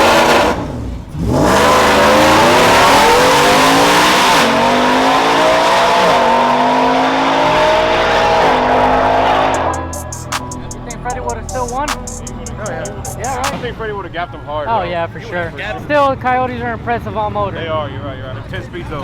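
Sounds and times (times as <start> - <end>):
truck engine accelerating hard: 0.0 - 10.1.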